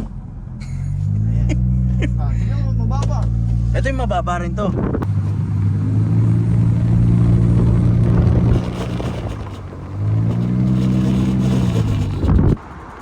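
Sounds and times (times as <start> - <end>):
motor humming: 4.5 - 12.6.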